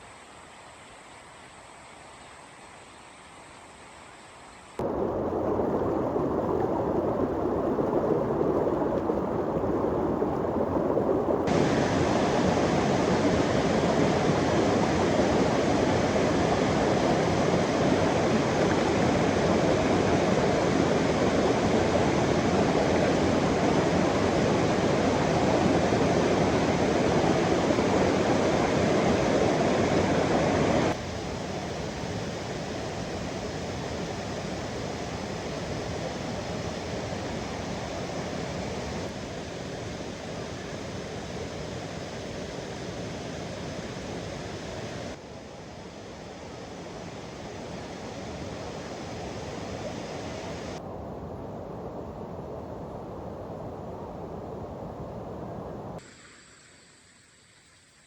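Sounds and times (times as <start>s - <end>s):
waterfall roaring: 4.8s - 31.0s, 48.3s - 50.8s.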